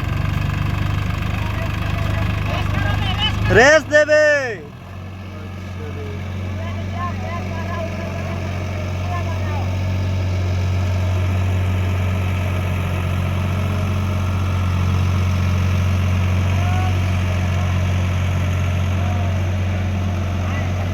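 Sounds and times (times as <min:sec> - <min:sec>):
diesel engine idling: 0:00.0 - 0:20.9.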